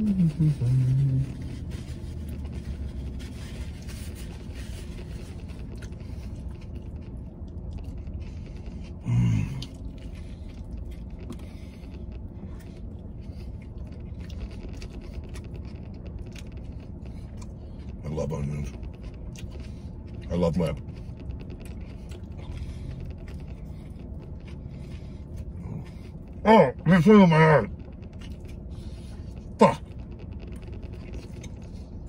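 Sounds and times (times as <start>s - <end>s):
man humming with full mouth: 0.0s - 1.5s
man chewing: 0.0s - 26.4s, 27.7s - 32.0s
low rumble: 0.0s - 32.0s.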